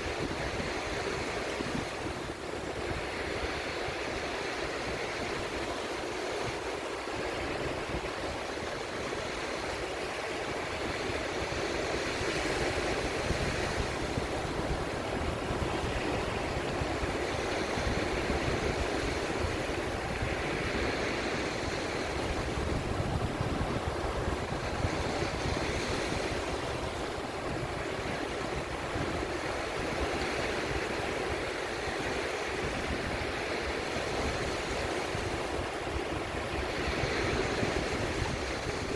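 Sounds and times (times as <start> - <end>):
sea waves washing in: 0.0 - 38.9.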